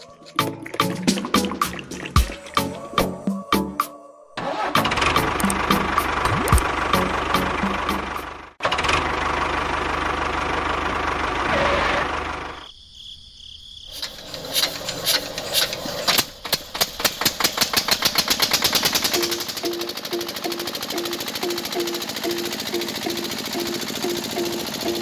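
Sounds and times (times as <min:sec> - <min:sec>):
engine running: 0:04.4 - 0:12.7, 0:14.0 - 0:25.0
fast rattling beat: 0:05.1 - 0:08.3, 0:16.8 - 0:25.0.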